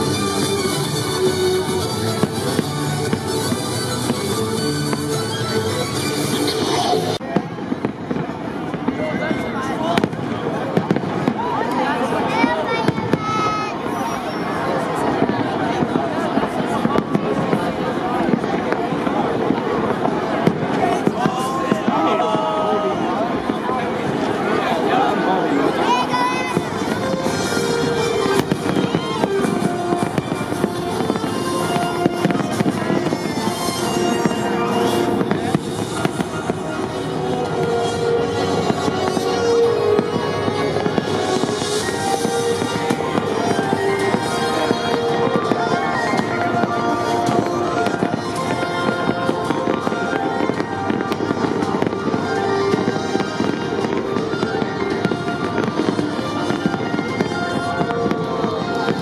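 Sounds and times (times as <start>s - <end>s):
music playing: 0.0s - 7.2s, 23.1s - 59.0s
fireworks bangs and crackles: 0.0s - 59.0s.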